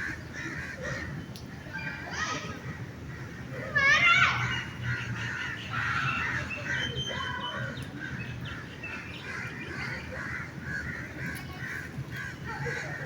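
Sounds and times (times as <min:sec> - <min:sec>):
birds calling: 0:03.0 - 0:13.0.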